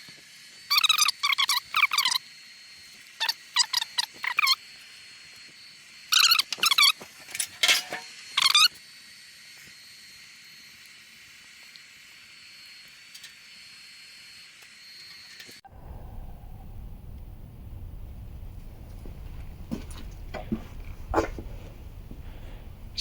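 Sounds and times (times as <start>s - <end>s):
faint steady hiss: 15.7s - 23.0s.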